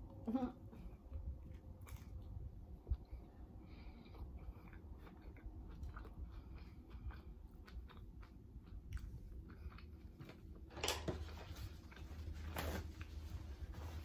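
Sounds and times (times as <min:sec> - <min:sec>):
close chewing with wet clicks: 0:01.1 - 0:10.7.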